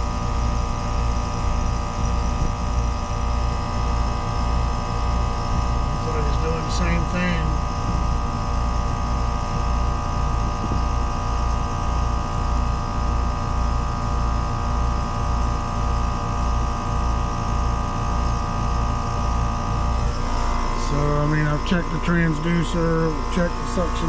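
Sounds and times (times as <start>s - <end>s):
heat pump pulsing hum: 0.0s - 24.0s
man talking: 6.0s - 7.6s, 20.8s - 24.0s.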